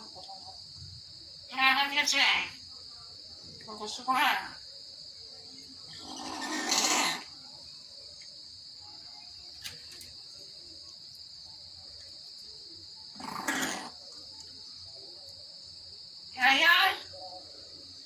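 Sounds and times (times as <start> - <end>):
insect drone: 0.0 - 18.0
myna harsh rasping calls: 5.9 - 7.4, 13.1 - 14.0.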